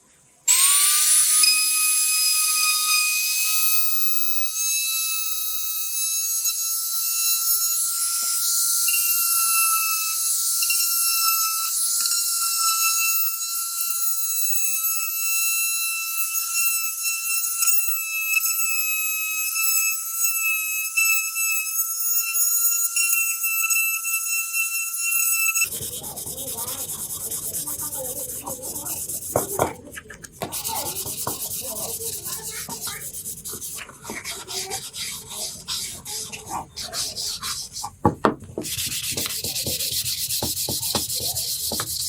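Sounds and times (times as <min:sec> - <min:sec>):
electric tool motor whining: 0:00.5 - 0:42.0.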